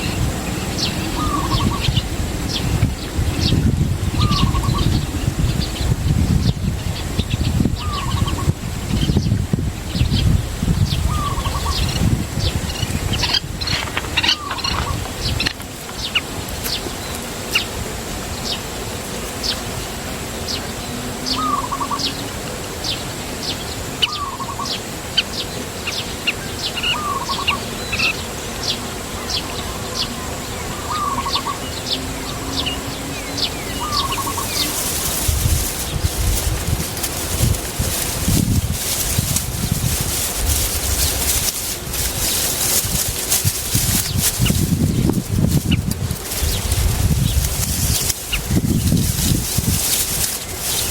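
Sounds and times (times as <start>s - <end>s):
small birds chirping: 0.0s - 17.8s, 18.4s - 50.9s.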